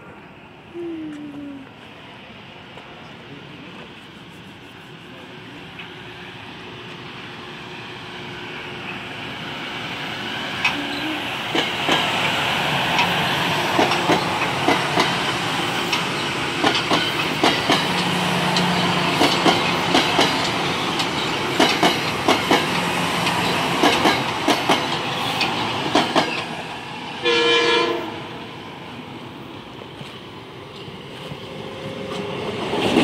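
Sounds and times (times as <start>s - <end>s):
train running hum: 0.0s - 33.0s
wheels clacking over rail joints: 10.5s - 26.7s.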